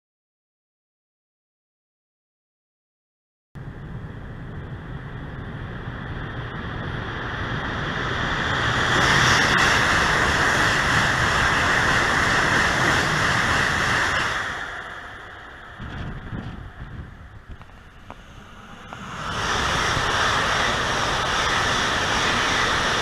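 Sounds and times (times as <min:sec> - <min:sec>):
high-speed train passing: 0:03.6 - 0:23.0.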